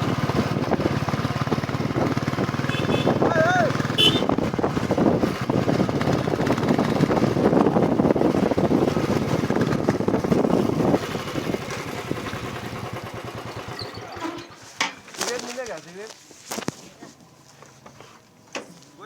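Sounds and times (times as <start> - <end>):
motorcycle engine running: 0.0 - 14.5.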